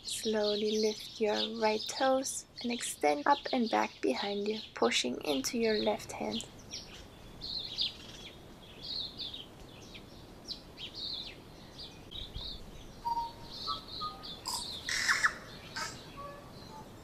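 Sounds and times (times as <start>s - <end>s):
songbirds chirping: 0.0s - 17.0s
whistled bird notes: 12.2s - 17.0s.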